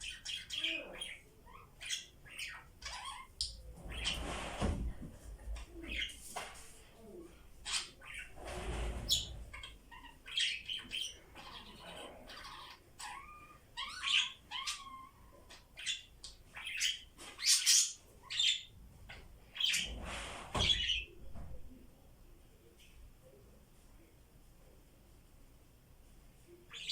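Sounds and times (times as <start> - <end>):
budgerigars chirping: 9.1 - 18.7
harsh bird calls: 19.5 - 21.2.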